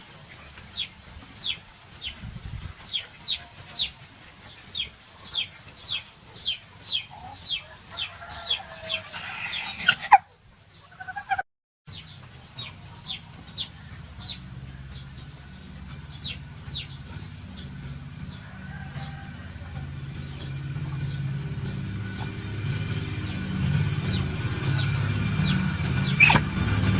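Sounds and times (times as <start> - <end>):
animal shrill sliding calls: 8.7 - 10.2, 10.9 - 11.4, 26.2 - 26.4.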